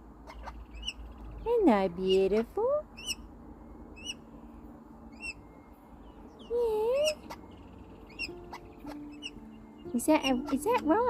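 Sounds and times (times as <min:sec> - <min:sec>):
parrot high chirps: 0:02.0 - 0:03.2, 0:05.1 - 0:05.4, 0:06.4 - 0:09.4.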